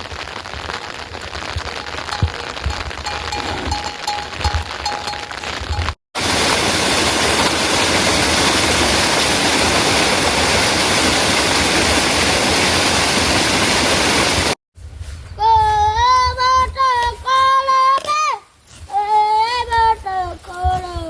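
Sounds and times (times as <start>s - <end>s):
flowing water rushing: 1.4s - 14.6s.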